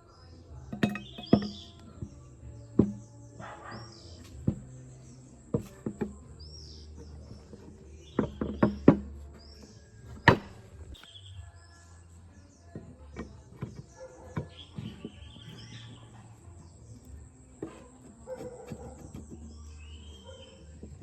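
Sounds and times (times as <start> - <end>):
small birds chirping: 0.0 - 21.0
metal tools knocking and clicking: 0.7 - 2.2.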